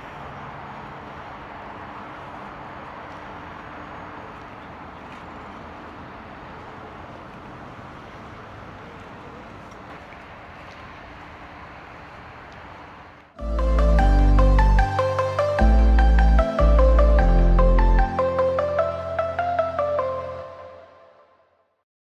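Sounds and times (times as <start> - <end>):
car engine hum: 13.4 - 20.0.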